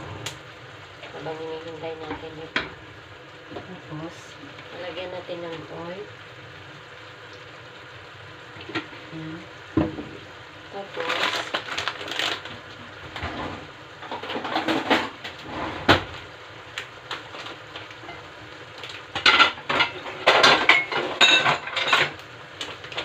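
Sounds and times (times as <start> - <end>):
pots and utensils clattering: 10.9 - 16.2, 17.3 - 23.0.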